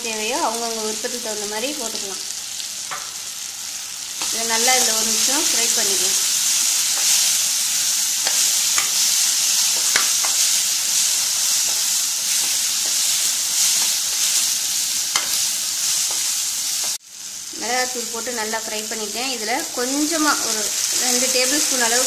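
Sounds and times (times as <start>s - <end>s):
masala sizzling in oil: 0.0s - 22.0s
steel spatula scraping and tapping: 9.7s - 10.5s, 15.1s - 15.4s.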